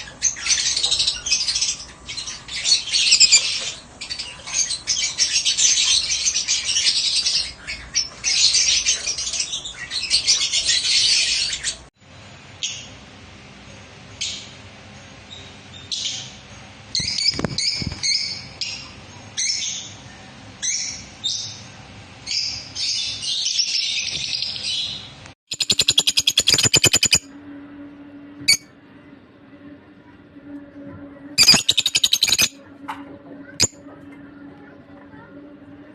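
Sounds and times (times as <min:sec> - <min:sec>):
lovebirds chirping: 0:00.3 - 0:11.8, 0:23.9 - 0:27.2, 0:31.4 - 0:32.5.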